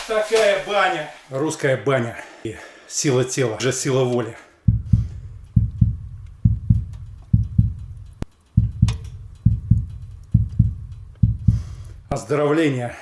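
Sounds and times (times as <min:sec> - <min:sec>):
heartbeat thumping: 0:04.7 - 0:12.2
sharp click: 0:06.2 - 0:12.0.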